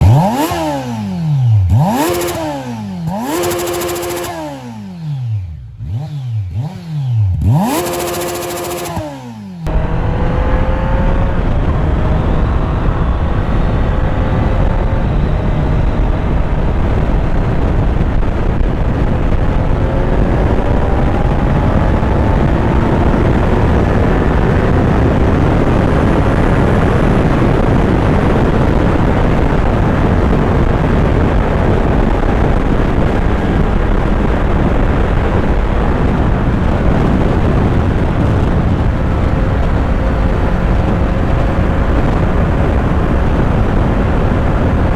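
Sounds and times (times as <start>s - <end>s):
motorcycle engine running: 0.0s - 44.9s
wind rush on microphone: 9.6s - 44.9s.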